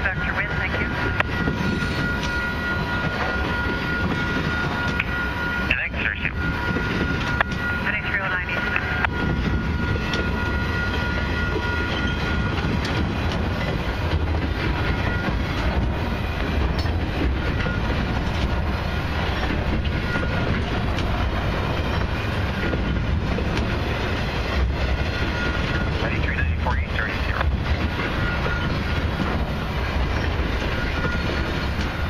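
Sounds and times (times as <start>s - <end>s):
wheels rumbling on rail: 0.0s - 32.0s
wheels clicking over rail joints: 9.0s - 26.0s.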